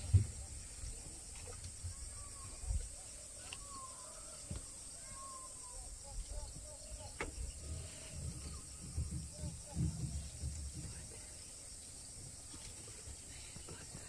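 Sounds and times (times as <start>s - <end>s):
insect drone: 0.0s - 14.0s
whistled bird calls: 1.8s - 12.0s.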